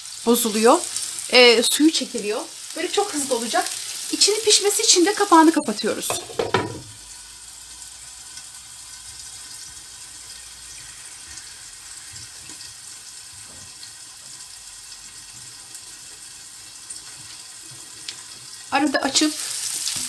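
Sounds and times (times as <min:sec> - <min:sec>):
meat sizzling in hot oil: 0:00.0 - 0:20.0
faint pops of frying oil: 0:06.0 - 0:07.0.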